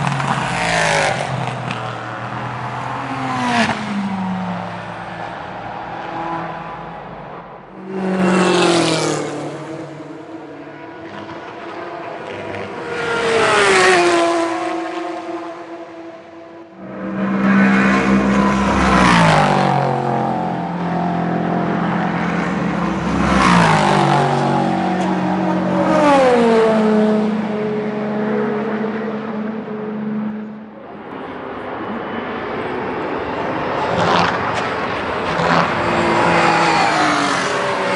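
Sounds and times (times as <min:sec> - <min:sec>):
racing cars passing at speed: 0:00.0 - 0:37.9.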